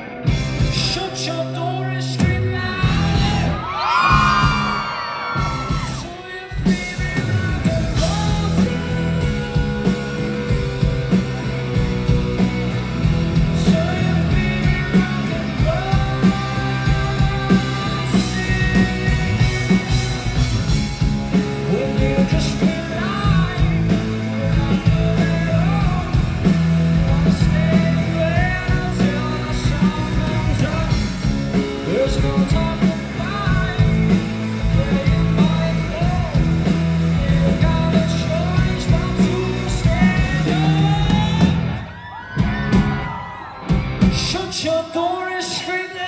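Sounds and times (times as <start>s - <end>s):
rock band playing loud: 0.0s - 46.0s
sliding guitar melodic lines: 7.5s - 41.9s.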